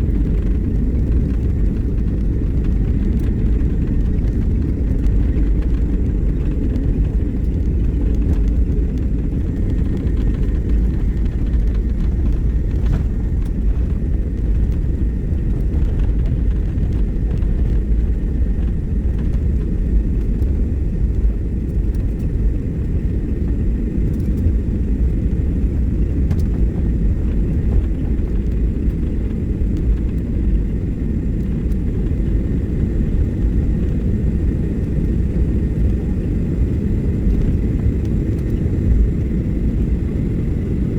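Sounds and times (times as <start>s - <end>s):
airliner cabin low rumble: 0.0s - 40.9s.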